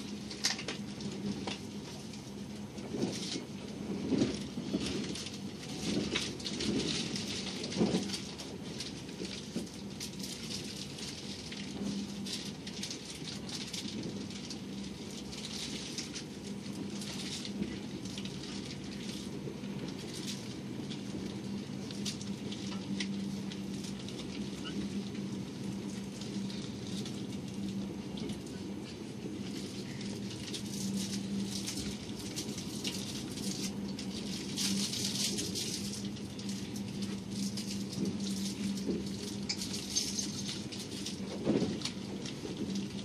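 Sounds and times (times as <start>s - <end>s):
train wheels rolling on rails: 0.0s - 43.0s.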